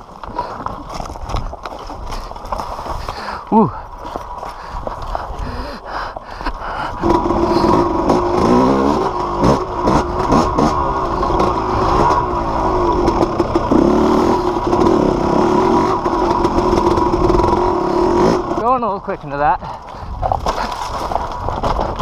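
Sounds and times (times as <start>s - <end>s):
dirt bike engine revving: 6.8s - 19.1s.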